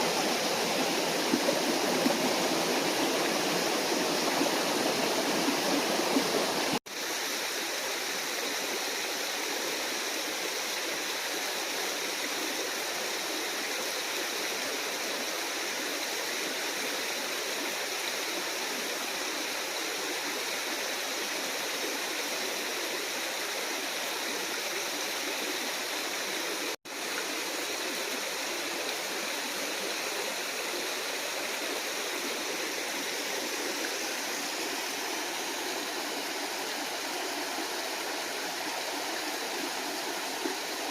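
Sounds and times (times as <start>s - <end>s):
waterfall rushing: 0.0s - 6.8s, 31.1s - 40.9s.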